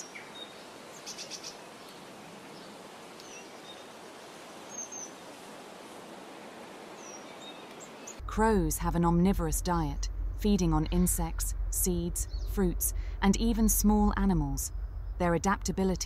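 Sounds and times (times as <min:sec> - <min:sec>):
outdoor background noise: 0:00.0 - 0:16.0
faint high bird chirps: 0:12.3 - 0:12.6.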